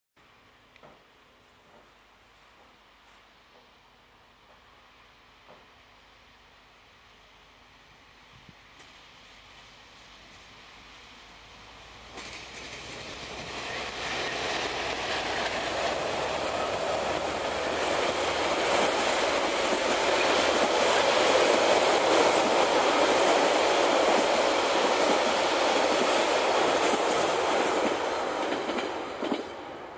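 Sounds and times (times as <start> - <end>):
train wheels on rails: 0.8 - 6.0, 8.1 - 29.9
diesel locomotive engine: 8.1 - 29.9.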